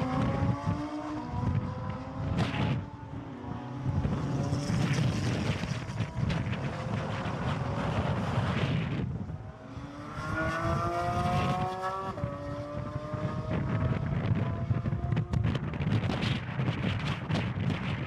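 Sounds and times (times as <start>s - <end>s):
car engine accelerating: 9.6s - 15.6s.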